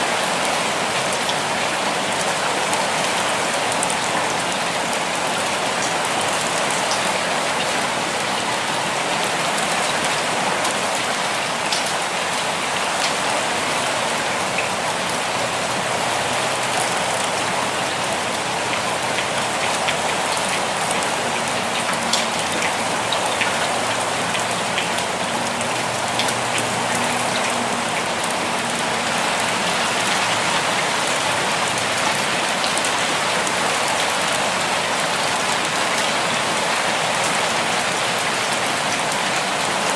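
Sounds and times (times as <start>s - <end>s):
gentle rainfall: 0.0s - 39.9s
raindrops ticking: 14.4s - 37.2s.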